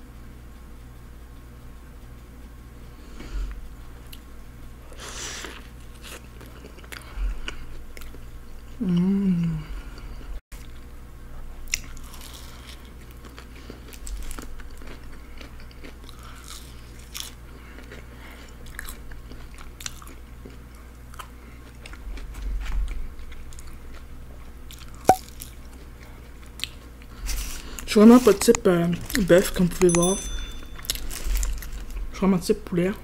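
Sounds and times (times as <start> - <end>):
low steady hum: 0.0 - 33.0
person chewing food: 4.9 - 10.9, 11.5 - 29.9, 30.5 - 32.1.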